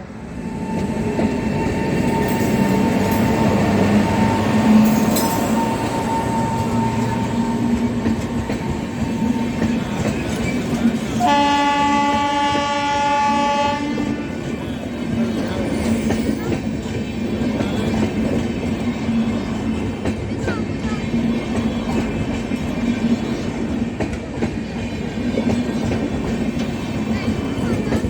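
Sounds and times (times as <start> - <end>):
electric locomotive running: 0.0 - 28.0
locomotive horn blast: 11.2 - 14.3.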